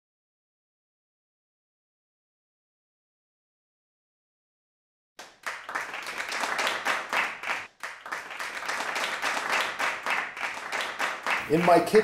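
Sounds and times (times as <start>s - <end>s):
applause: 5.2s - 12.0s.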